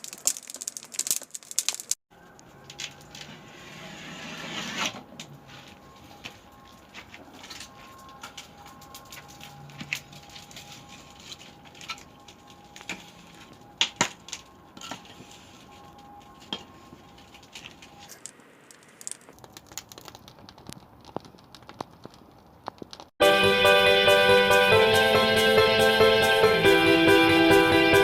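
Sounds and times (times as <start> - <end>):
firewood crackling and popping: 0.0 - 3.3, 5.7 - 23.2.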